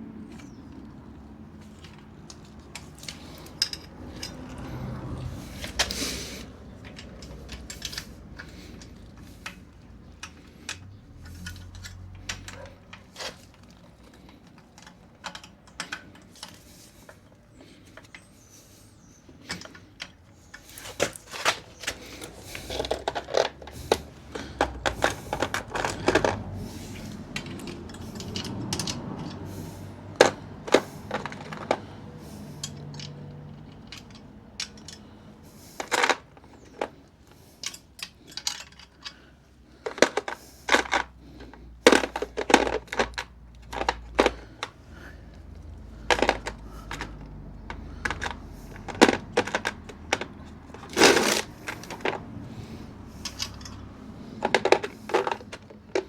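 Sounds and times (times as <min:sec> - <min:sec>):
metallic clinks and knocks: 0:01.6 - 0:18.3, 0:19.4 - 0:44.8, 0:45.4 - 0:56.0.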